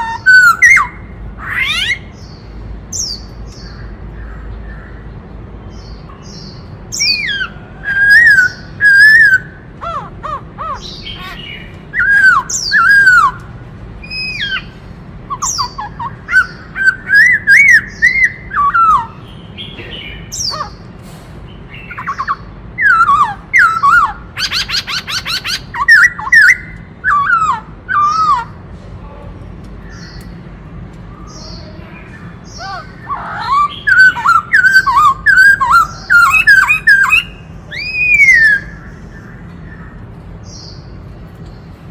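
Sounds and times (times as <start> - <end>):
laughingthrush singing whistled phrases: 10.3 - 13.4, 15.3 - 19.2, 21.9 - 28.5, 32.6 - 38.8.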